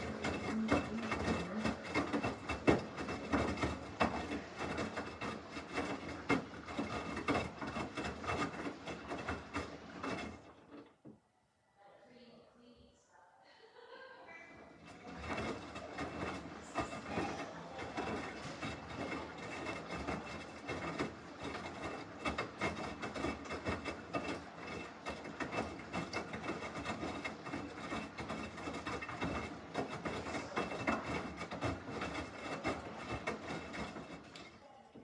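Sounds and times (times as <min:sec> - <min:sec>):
washing machine churning: 0:00.0 - 0:11.1, 0:14.0 - 0:35.0.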